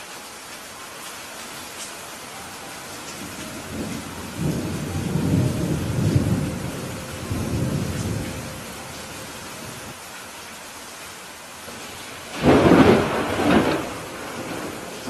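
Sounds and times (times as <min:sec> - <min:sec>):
steady rain: 0:00.0 - 0:15.0
thunder rumbling: 0:02.6 - 0:10.0, 0:11.7 - 0:15.0.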